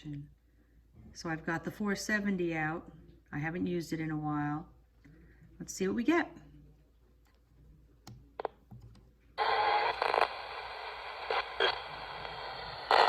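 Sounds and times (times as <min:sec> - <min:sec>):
radio static hiss: 0:09.4 - 0:13.0.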